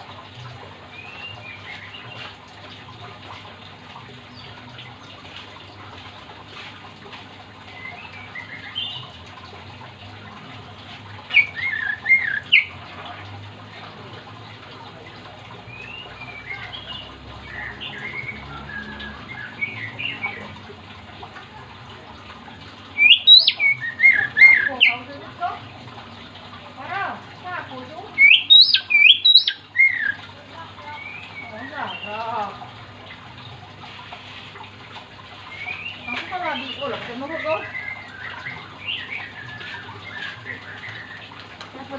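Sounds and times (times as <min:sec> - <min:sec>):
bird singing whistled phrases: 0:23.0 - 0:25.0, 0:28.2 - 0:30.2.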